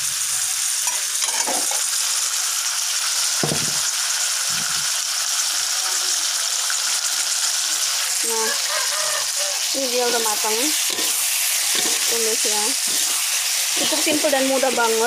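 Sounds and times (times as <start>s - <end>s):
food sizzling in a wok: 0.0s - 15.0s
spatula stirring: 10.4s - 15.0s.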